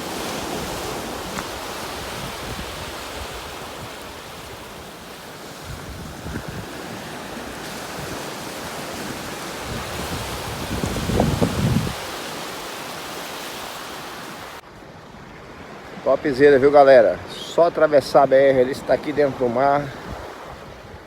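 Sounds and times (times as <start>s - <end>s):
wind buffeting microphone: 0.0s - 12.2s
ocean waves washing on beach: 0.0s - 21.0s.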